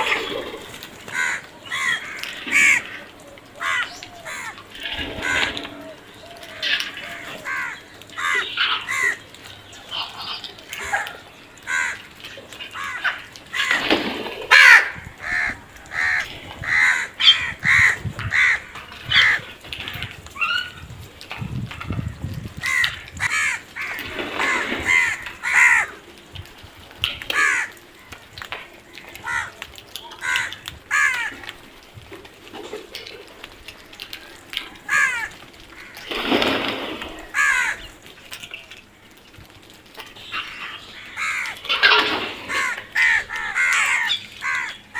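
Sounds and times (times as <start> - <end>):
crows cawing: 0.0 - 9.3, 9.9 - 13.9, 14.5 - 19.6, 22.6 - 26.0, 27.2 - 31.6, 34.8 - 38.0, 40.1 - 44.9.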